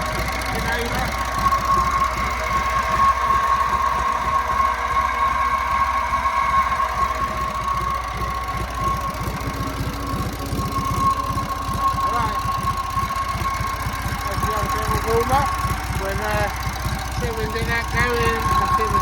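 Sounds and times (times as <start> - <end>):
generator whine: 0.0 - 19.0
stationary engine running: 0.0 - 19.0.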